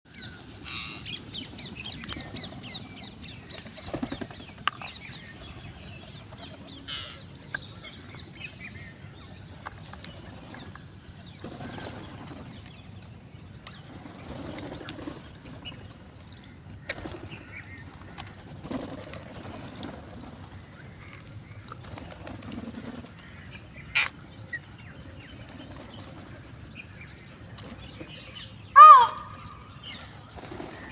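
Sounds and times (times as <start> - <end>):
parrots chirping: 28.8 - 29.6
harsh parrot call: 28.8 - 29.7.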